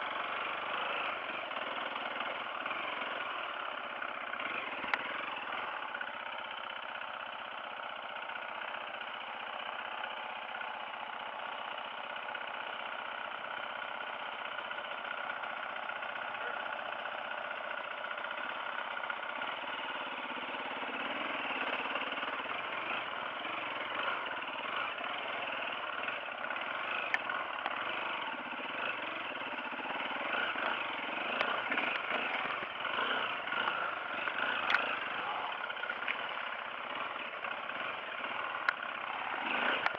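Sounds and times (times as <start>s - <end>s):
dirt bike engine running: 0.0s - 39.9s
sharp clicks: 30.5s - 35.2s.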